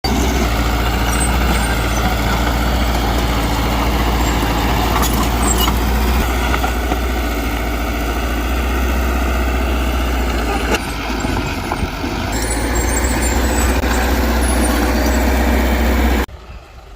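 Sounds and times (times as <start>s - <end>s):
heavy machinery diesel engine: 0.0s - 16.9s.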